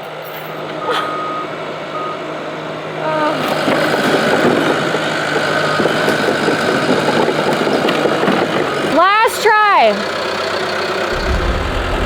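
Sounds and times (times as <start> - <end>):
bulldozer diesel engine running: 10.0 - 12.0.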